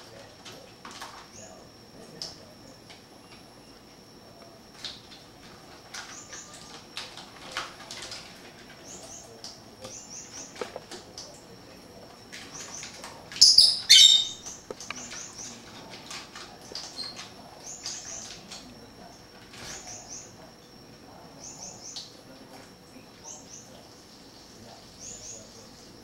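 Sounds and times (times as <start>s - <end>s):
pet birds chirping: 5.9s - 7.0s, 8.7s - 10.8s, 12.4s - 15.8s, 16.6s - 22.2s, 23.1s - 26.0s
harsh bird call burst: 13.4s - 14.4s.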